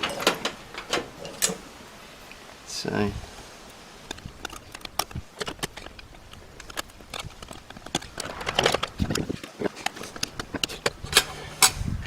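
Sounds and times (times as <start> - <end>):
hand tool clicking on metal: 9.8 - 11.9.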